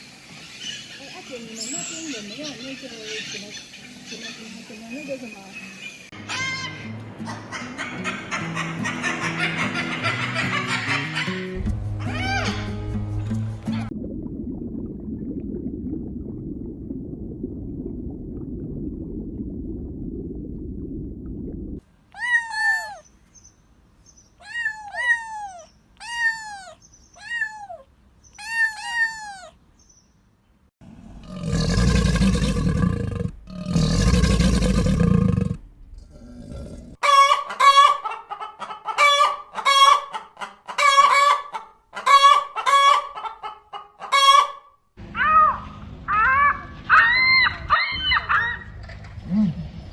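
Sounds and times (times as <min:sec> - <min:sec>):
low rumble: 0:13.6 - 0:21.8
chicken clucking: 0:37.0 - 0:44.6
chickens calling: 0:37.0 - 0:44.7.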